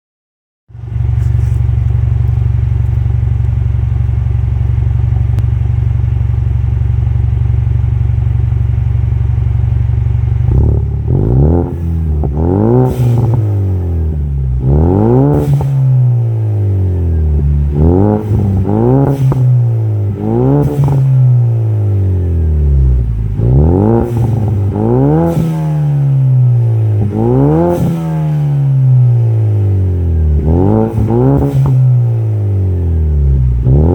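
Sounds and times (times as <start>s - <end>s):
car engine idling and revving: 0.7s - 33.9s.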